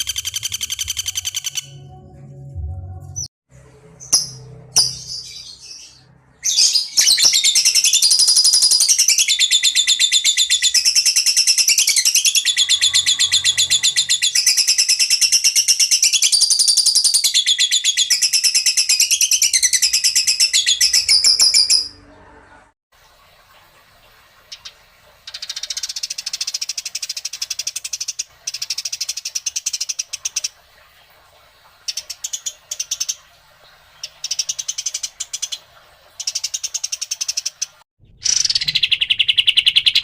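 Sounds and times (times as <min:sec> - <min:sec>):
songbird rapid trill: 0:00.0 - 0:01.8.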